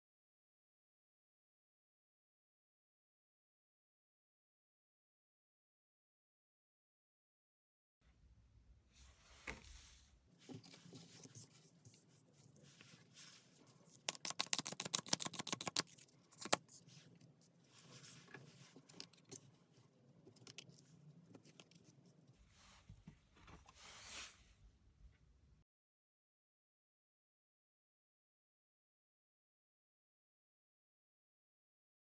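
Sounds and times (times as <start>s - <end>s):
cards being shuffled: 12.8s - 16.9s
papery card clicks: 14.0s - 16.7s.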